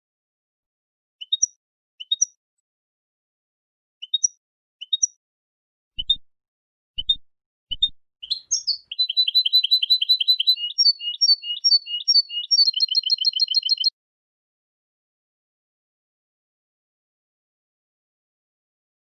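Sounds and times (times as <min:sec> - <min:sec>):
goldfinch twittering song: 0:01.2 - 0:02.4, 0:04.0 - 0:05.2, 0:07.0 - 0:13.9.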